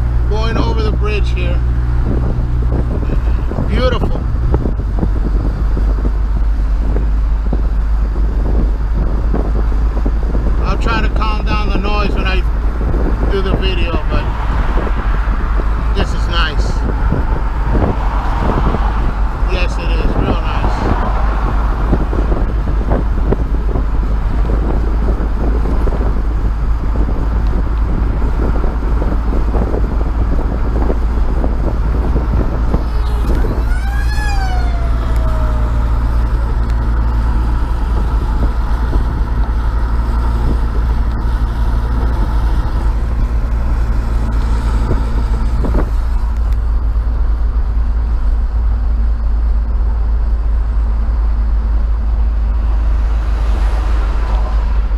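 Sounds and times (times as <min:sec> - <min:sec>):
vehicle road and engine rumble: 0:00.0 - 0:54.9
short pitched squeal: 0:32.8 - 0:37.3.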